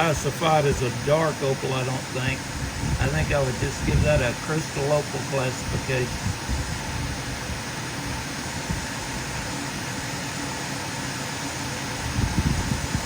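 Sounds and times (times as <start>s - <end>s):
fan or motor whirring: 0.0s - 13.0s.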